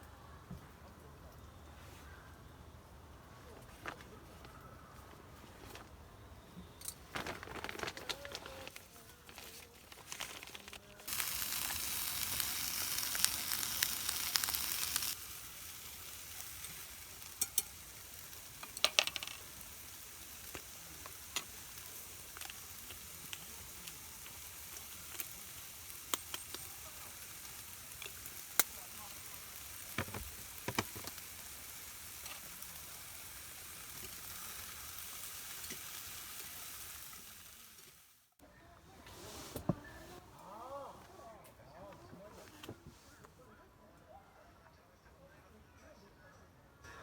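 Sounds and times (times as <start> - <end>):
food sizzling in a pan: 9.4 - 38.4.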